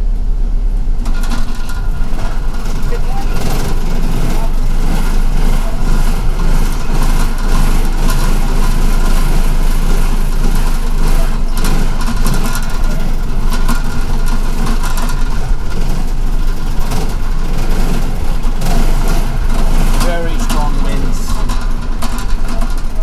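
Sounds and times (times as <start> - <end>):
blizzard wind buffeting bus: 0.0 - 23.0
bus engine rumbling: 0.0 - 23.0.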